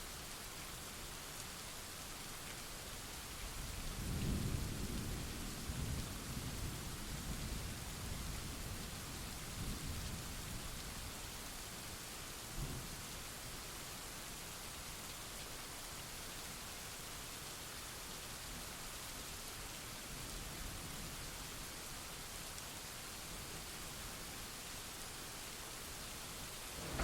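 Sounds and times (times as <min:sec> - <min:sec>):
rain hissing: 0:19.8 - 0:27.0
thunder rumbling: 0:26.6 - 0:27.0
low bump: 0:26.7 - 0:27.0.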